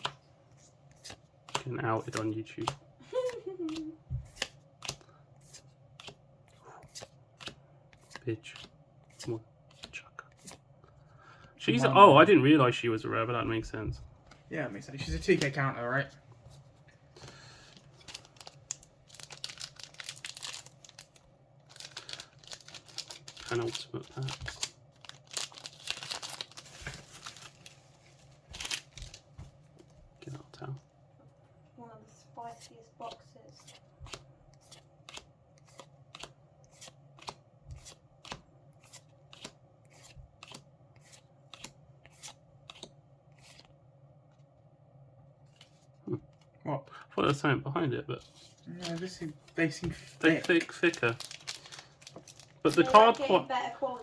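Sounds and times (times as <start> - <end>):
foil wrapper crinkling and tearing: 18.0 - 27.8, 28.5 - 29.3, 50.2 - 53.6.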